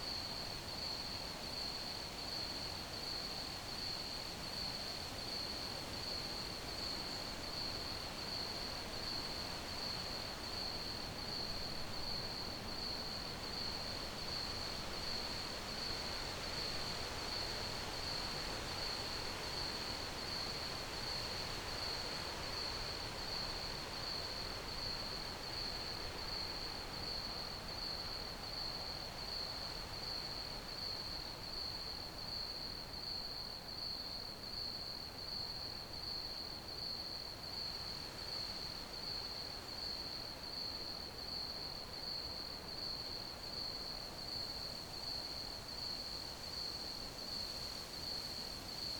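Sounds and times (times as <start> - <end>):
crickets chirping: 25.6 - 48.9.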